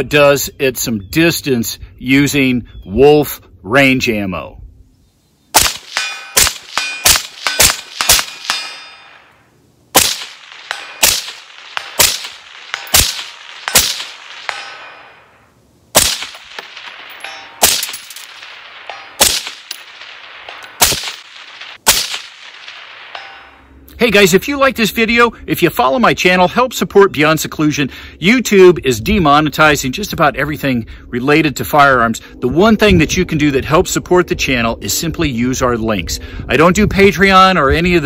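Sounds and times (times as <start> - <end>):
suppressed rifle shots: 5.5 - 9.2, 9.9 - 15.3, 15.9 - 23.2
bullets ringing on steel targets: 5.6 - 9.3, 10.0 - 15.4, 16.0 - 23.7.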